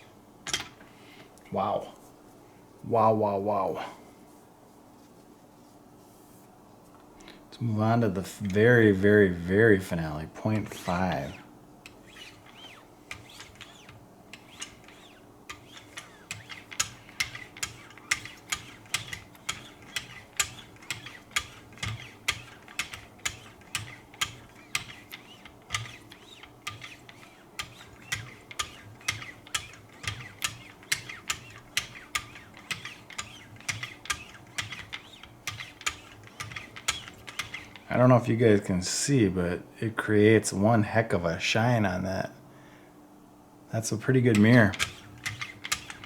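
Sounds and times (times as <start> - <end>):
knife sharpener strokes: 10.6 - 37.9, 44.3 - 46.0.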